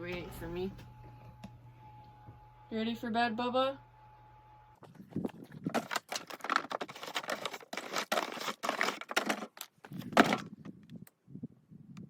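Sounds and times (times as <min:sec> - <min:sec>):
close rustling and crinkling: 0:04.9 - 0:10.5.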